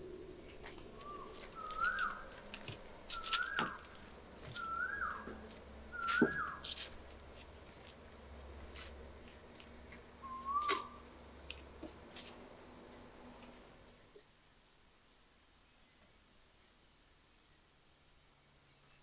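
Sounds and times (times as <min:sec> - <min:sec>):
footsteps on wooden boards: 0:00.6 - 0:08.0
bird whistling: 0:01.0 - 0:02.3, 0:03.1 - 0:03.9, 0:04.5 - 0:05.3, 0:05.9 - 0:06.6, 0:10.2 - 0:11.0.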